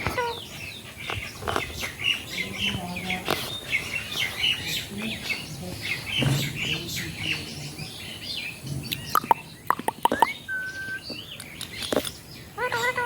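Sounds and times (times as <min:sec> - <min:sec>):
parrots chirping rapidly: 0:08.9 - 0:13.0.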